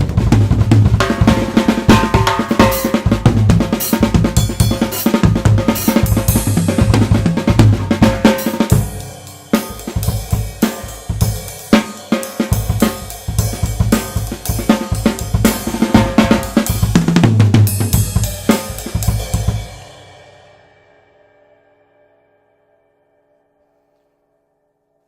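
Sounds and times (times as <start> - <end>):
drum kit groove: 0.0 - 20.4
cymbals ringing: 1.1 - 3.2.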